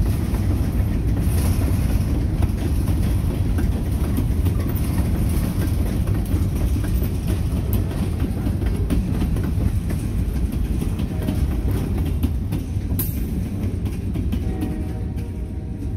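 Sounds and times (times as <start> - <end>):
clicks and clanks over track: 0.0 - 15.9
train wheels rumbling on rails: 0.0 - 15.9.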